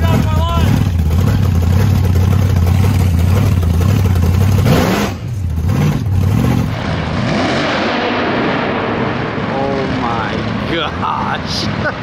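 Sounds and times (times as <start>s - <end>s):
car engine rumbling and revving: 0.0s - 12.0s.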